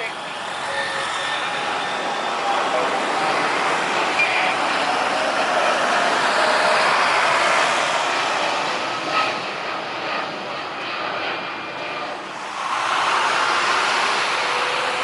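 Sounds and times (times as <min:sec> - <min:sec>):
jet engines passing: 0:00.0 - 0:15.0.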